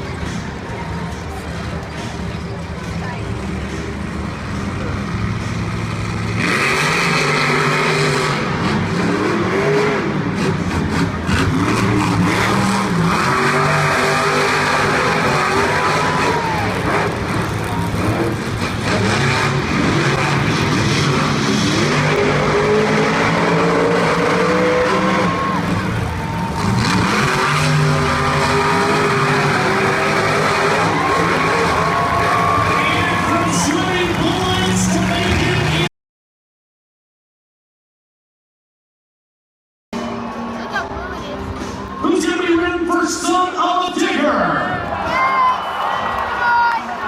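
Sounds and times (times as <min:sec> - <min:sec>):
truck engines revving hard: 0:00.0 - 0:35.9.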